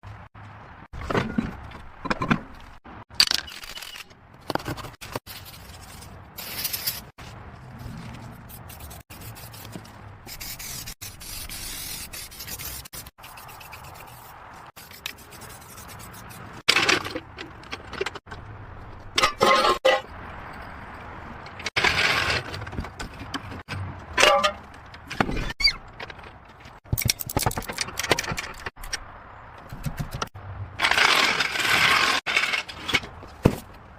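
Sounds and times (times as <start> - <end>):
metal parts and tools clanking: 16.6 - 29.1, 30.8 - 33.7.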